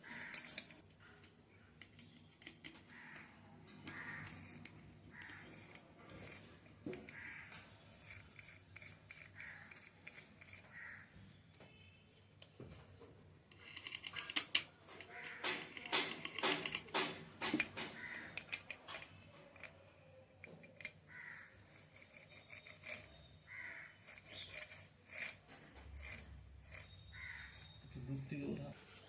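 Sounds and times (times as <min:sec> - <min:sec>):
crow cawing: 0:00.0 - 0:00.5, 0:02.9 - 0:04.4, 0:07.1 - 0:07.6, 0:10.7 - 0:11.1, 0:15.1 - 0:15.7, 0:18.0 - 0:18.4, 0:21.1 - 0:21.6, 0:23.5 - 0:24.0, 0:27.0 - 0:27.8
metal parts clinking: 0:15.8 - 0:21.1.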